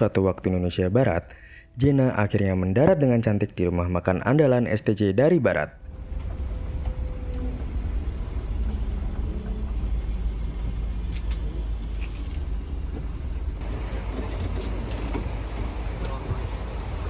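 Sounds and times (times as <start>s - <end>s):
coach engine rumbling: 5.8s - 17.0s.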